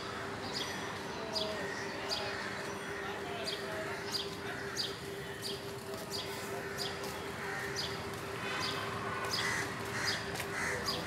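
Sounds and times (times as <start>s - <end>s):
crows cawing: 4.0s - 5.1s, 6.4s - 8.0s, 9.3s - 11.0s.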